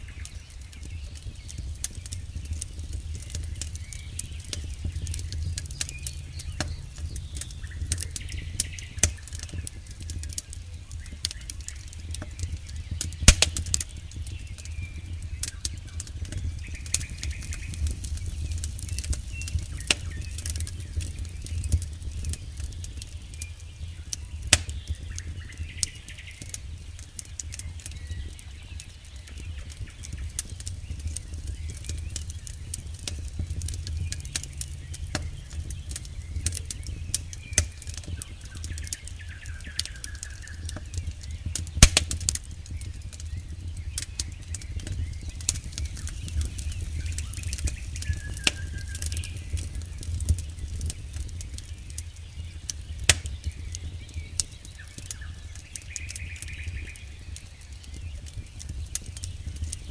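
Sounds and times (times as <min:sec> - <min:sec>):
wood fire crackling: 0:00.0 - 0:59.9
low rumble: 0:01.5 - 0:25.1, 0:29.6 - 0:53.8.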